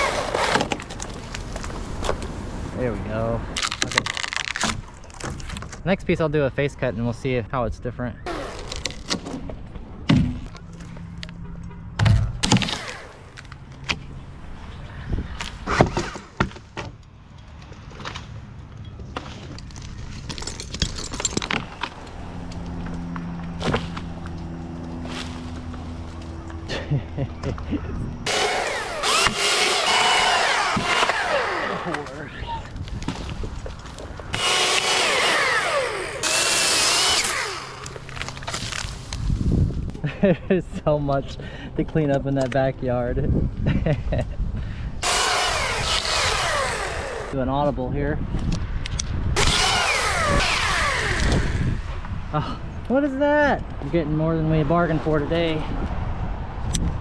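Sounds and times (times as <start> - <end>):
chainsaw cutting wood: 0.0 - 2.2, 8.3 - 9.4, 12.4 - 13.6, 28.2 - 39.1, 45.0 - 47.4, 49.4 - 52.0
metallic clinks and rattles: 20.1 - 22.2.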